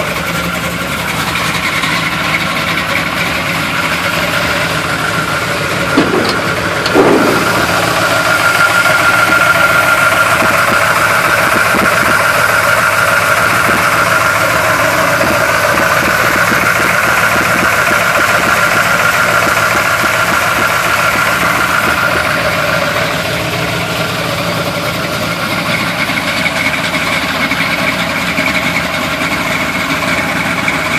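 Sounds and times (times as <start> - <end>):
engine idling rough and choppy: 0.0 - 30.9
engine revving: 3.2 - 24.8.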